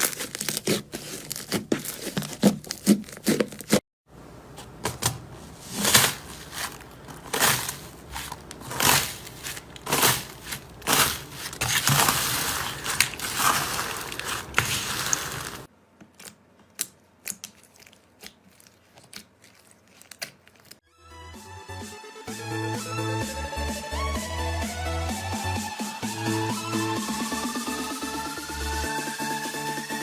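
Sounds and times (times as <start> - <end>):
slime crackling and squishing: 0.0 - 3.8, 5.5 - 20.8.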